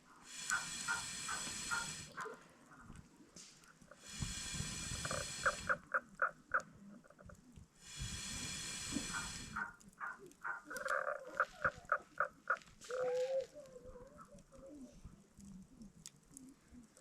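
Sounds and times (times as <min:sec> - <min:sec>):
hissing: 0:00.1 - 0:17.0
high squeaky calls: 0:00.4 - 0:02.4, 0:09.1 - 0:13.6.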